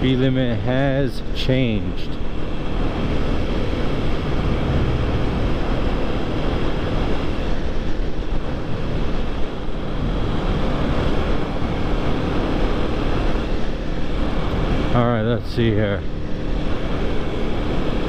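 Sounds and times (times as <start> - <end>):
road noise: 0.0 - 18.0
motorcycle engine running: 2.2 - 15.2
wind rushing over microphone: 2.2 - 18.0.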